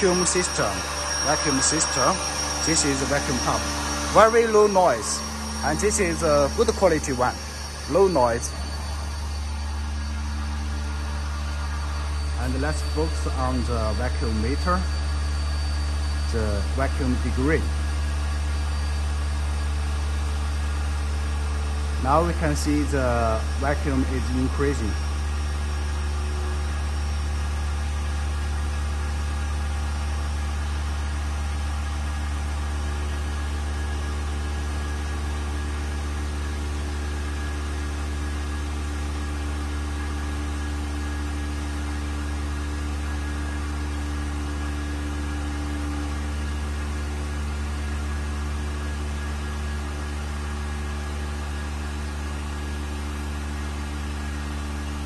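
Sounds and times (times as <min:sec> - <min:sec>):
vacuum pump humming: 0:00.0 - 0:22.0.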